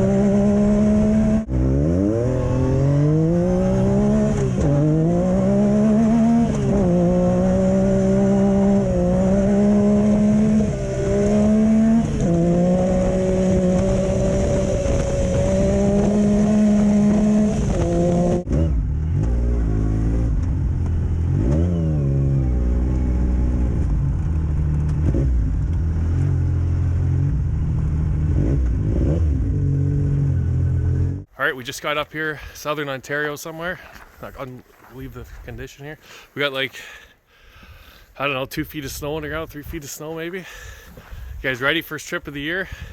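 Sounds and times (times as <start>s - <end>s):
lower-pitched engine revving: 0.0s - 31.3s.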